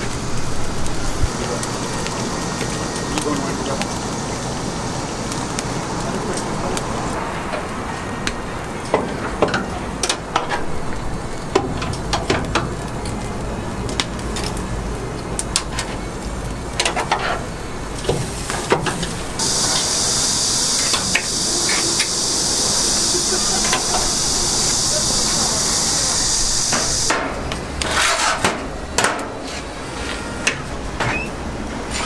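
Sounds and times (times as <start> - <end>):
sharp crackles and clicks: 0.0 - 27.9
chicken roasting over charcoal: 0.0 - 32.0
loud steady hiss: 0.0 - 32.0.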